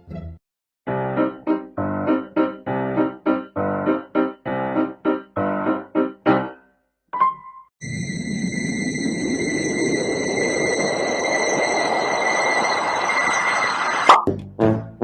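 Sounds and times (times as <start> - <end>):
bouncy piano chords: 0.0 - 7.7.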